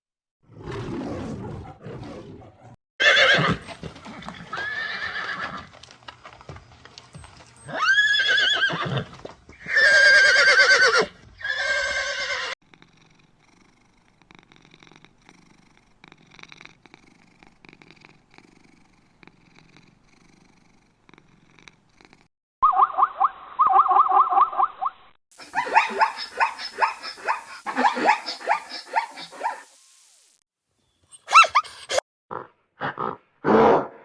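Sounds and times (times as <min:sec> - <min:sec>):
horse whinnying: 0:03.0 - 0:05.7, 0:07.7 - 0:12.6.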